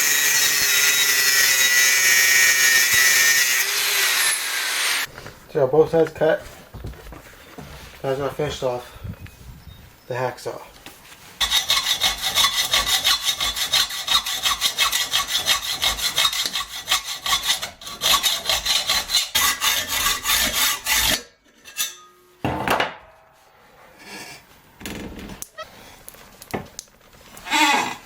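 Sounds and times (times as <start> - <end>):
hacksaw cutting metal: 0.0 - 5.1, 11.4 - 22.2.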